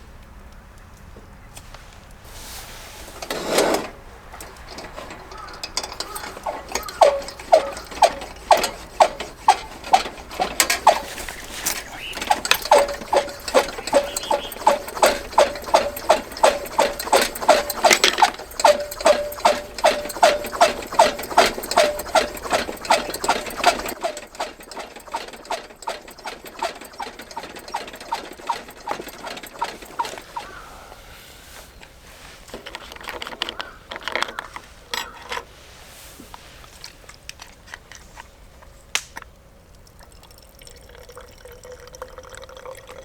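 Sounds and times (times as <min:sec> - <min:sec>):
rhythmic hard knocking with ringing: 0:04.4 - 0:30.6.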